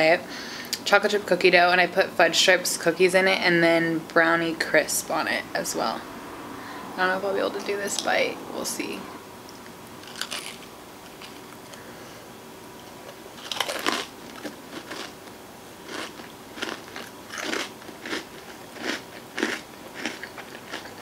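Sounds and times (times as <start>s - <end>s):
crunching and chewing food: 9.6s - 12.0s, 12.8s - 21.0s.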